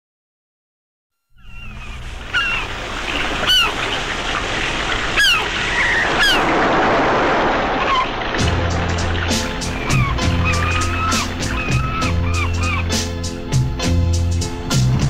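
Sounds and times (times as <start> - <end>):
birds crying with falling pitch: 1.4 - 8.3, 9.2 - 13.5
steady rushing noise: 1.9 - 14.8.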